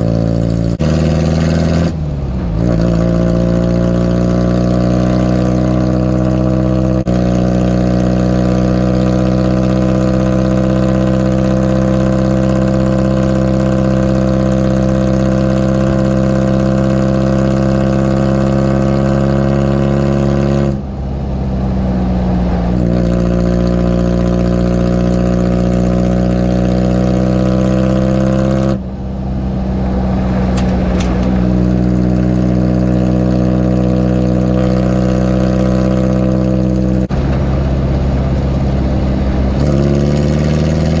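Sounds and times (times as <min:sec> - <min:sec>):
diesel engine drone: 0:00.0 - 0:41.0.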